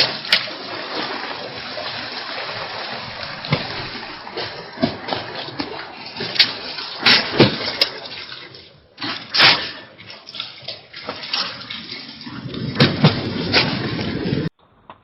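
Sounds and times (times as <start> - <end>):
heavy rain pouring: 0.0 - 6.2.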